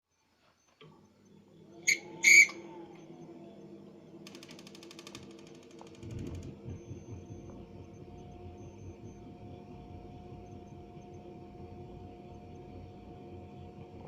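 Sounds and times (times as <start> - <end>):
boiler fan humming: 0.8 - 14.0
thin squeak: 1.8 - 2.6
low rumble: 2.7 - 14.0
rapid ticking: 4.2 - 12.1.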